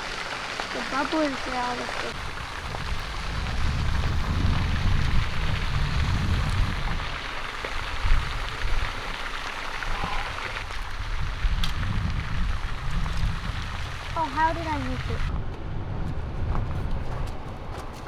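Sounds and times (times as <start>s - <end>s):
wind buffeting microphone: 0.7s - 18.0s.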